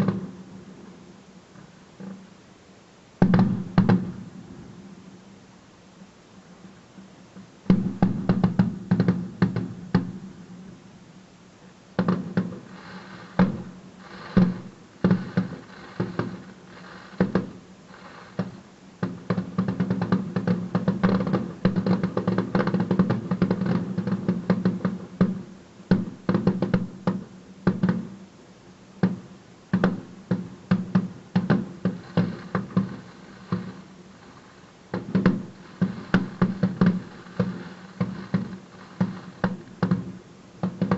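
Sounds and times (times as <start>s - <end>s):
fireworks bangs and crackles: 0.0s - 0.7s, 3.2s - 4.8s, 7.6s - 10.7s, 12.0s - 28.2s, 29.0s - 40.9s.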